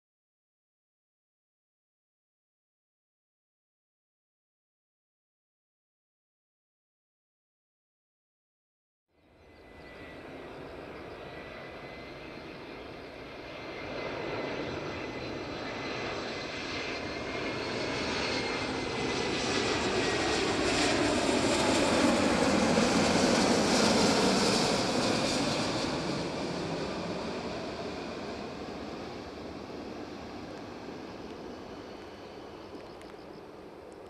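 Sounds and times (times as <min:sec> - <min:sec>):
airliner passing overhead: 0:09.2 - 0:34.0.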